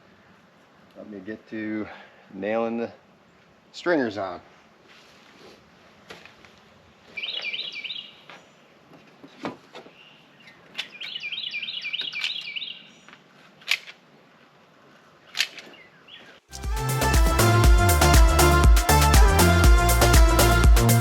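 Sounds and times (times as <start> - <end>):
bird chirping rapidly: 7.2 - 8.2, 10.0 - 13.0.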